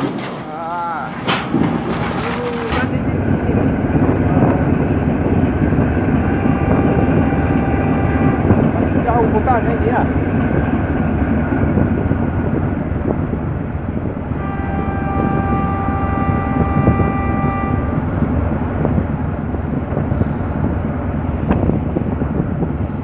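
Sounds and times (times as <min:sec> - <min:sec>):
boat engine low rumble: 0:00.0 - 0:23.0
steady horn: 0:06.1 - 0:09.3, 0:14.3 - 0:18.4
wind on microphone: 0:10.1 - 0:23.0.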